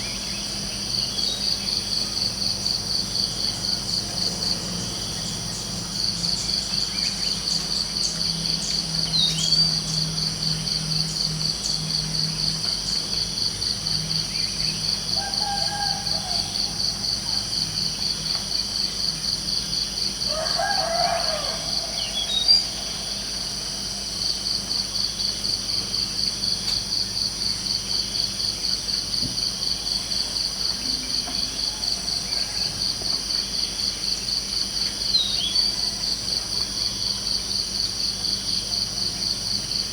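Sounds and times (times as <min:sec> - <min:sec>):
crickets chirping: 0:00.0 - 0:39.9
rooster crowing: 0:15.1 - 0:17.7, 0:20.2 - 0:23.9.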